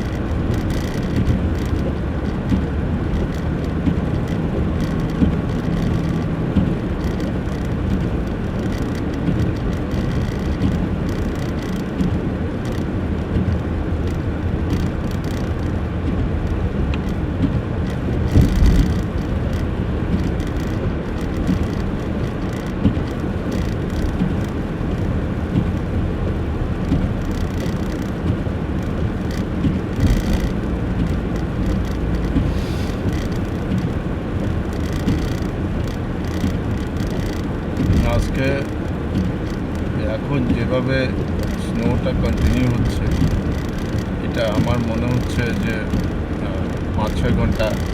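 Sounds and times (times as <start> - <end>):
car engine and tyres rumbling: 0.0 - 47.9.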